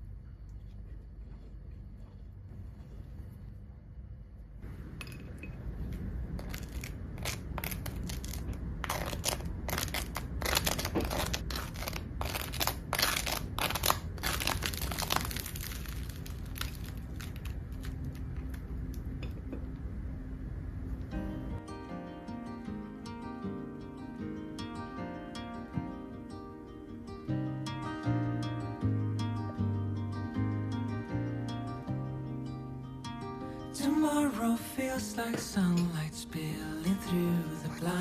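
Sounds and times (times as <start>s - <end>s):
low steady rumble: 0.0s - 21.7s
crisp crunching crackles: 6.4s - 19.0s.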